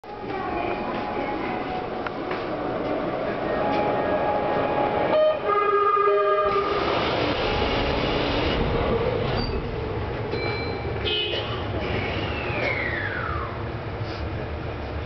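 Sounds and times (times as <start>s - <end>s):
train running rumble: 6.2s - 15.0s.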